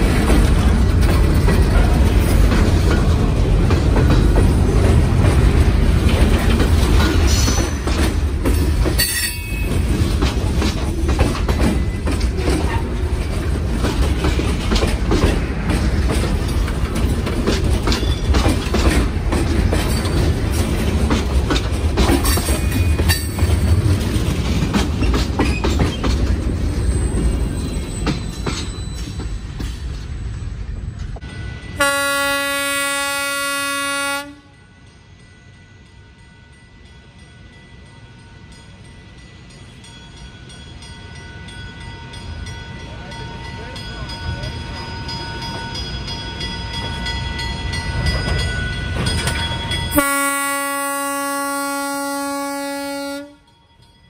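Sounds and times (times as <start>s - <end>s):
wheels clicking over rail joints: 0.0s - 31.3s, 45.8s - 50.1s
freight train rumbling: 0.0s - 54.0s
locomotive horn: 31.8s - 34.6s, 49.9s - 53.5s.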